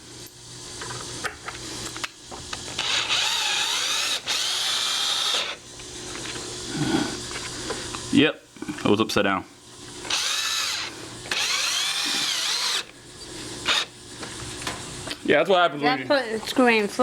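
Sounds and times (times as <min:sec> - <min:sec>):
electric drill motor whine: 0:01.9 - 0:06.4, 0:09.9 - 0:14.0.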